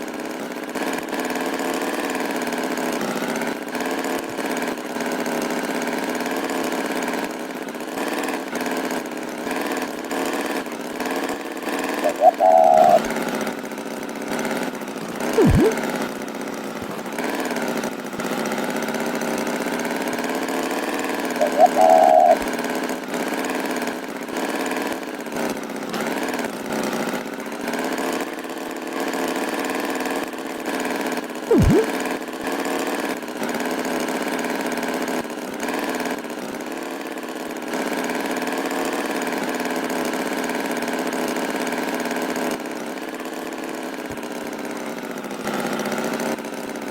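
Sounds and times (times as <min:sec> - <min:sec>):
cartoon tractor engine: 0:00.0 - 0:28.6, 0:29.2 - 0:32.7
falling-pitch sound effect: 0:15.4 - 0:15.8, 0:31.5 - 0:31.9
short high-pitched sound: 0:15.4 - 0:15.8, 0:31.5 - 0:31.9.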